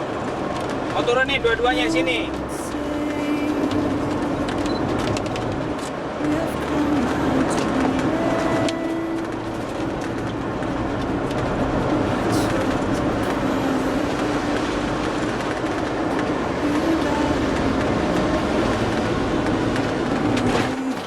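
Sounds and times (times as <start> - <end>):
vehicle road and engine noise: 0.0 - 21.0.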